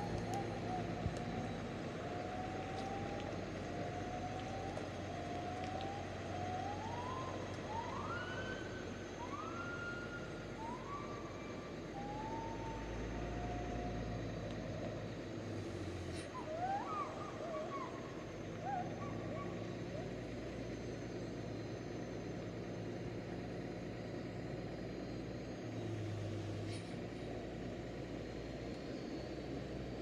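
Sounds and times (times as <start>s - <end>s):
heavy truck engine revving: 17.2s - 30.0s.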